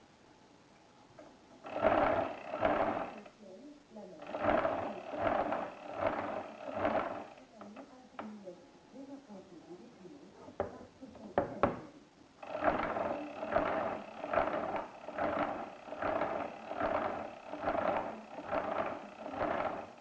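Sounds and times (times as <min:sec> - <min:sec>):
calculator crank ratcheting gears: 0:01.6 - 0:03.3, 0:04.2 - 0:07.8, 0:12.4 - 0:20.0
sharp mechanical clicks: 0:01.6 - 0:03.3, 0:04.2 - 0:08.3, 0:12.4 - 0:20.0.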